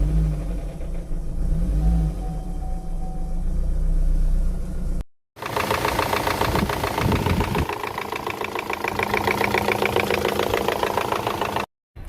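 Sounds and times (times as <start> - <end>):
engine running with rapid knocking: 5.4 - 11.7.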